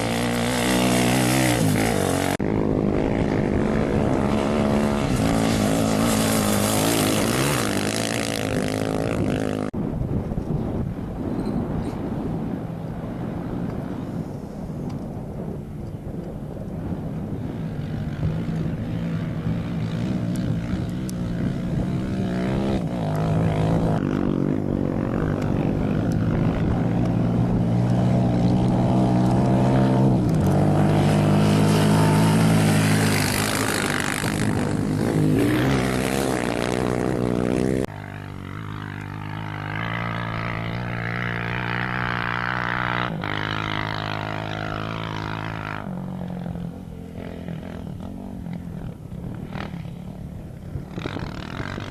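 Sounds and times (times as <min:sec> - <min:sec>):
quieter engine running: 0:00.0 - 0:09.7, 0:17.2 - 0:51.9
engine revving through gears: 0:04.1 - 0:09.4.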